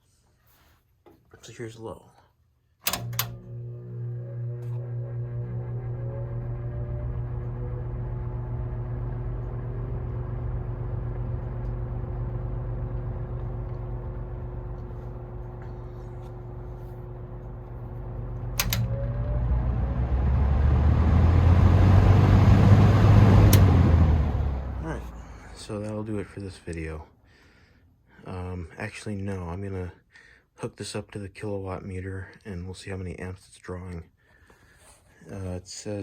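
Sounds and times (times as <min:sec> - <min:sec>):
fan switch click: 0:02.8 - 0:03.4, 0:18.4 - 0:19.2, 0:23.4 - 0:23.9
box fan motor humming: 0:02.9 - 0:25.4.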